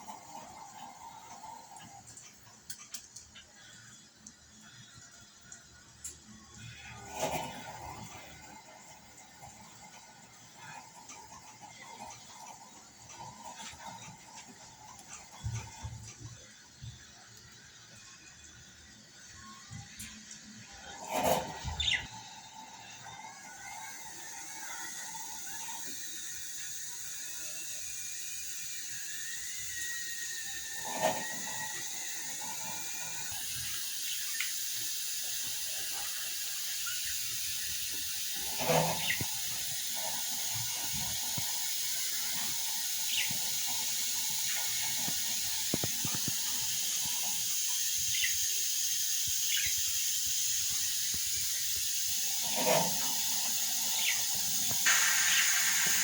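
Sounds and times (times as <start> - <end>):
steady hiss: 0.0 - 56.0
budgerigars chirping: 21.2 - 22.1, 49.5 - 49.8.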